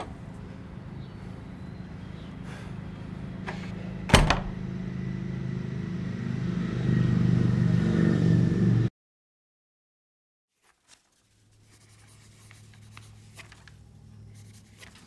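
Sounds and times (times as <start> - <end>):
engine running steadily: 0.0 - 8.9.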